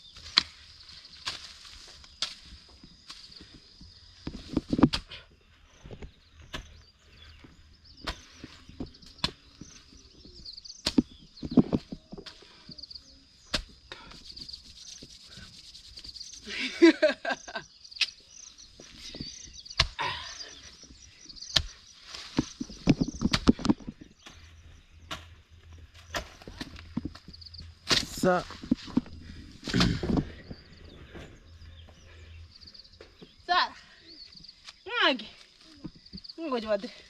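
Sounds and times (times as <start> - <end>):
hoe chopping into soil: 19.7 - 20.1, 21.5 - 25.4, 26.0 - 30.4.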